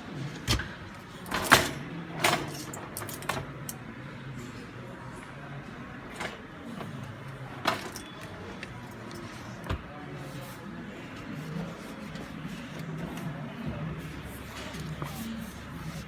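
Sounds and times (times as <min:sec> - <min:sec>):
low background murmur: 0:00.0 - 0:16.0.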